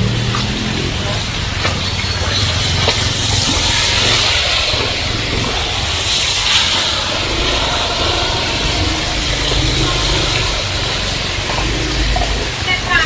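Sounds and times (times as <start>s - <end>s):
heavy rain downpour: 0.0s - 13.0s
low vehicle engine rumble: 0.0s - 13.0s.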